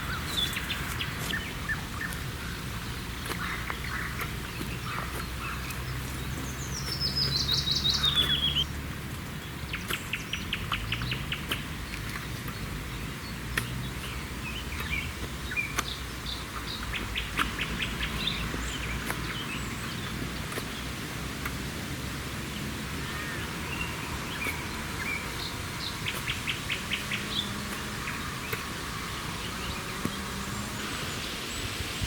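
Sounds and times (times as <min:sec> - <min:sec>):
rapidly repeated bird notes: 0:00.0 - 0:32.0
songbirds singing: 0:00.0 - 0:32.0.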